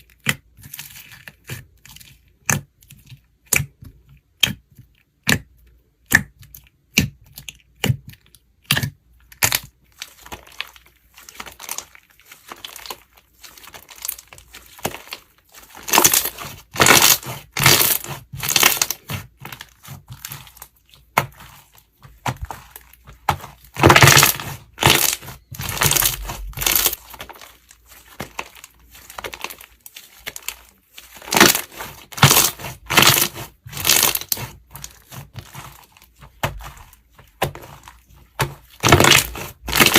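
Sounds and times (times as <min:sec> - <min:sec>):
slime crackling when squished: 0:08.7 - 0:39.9.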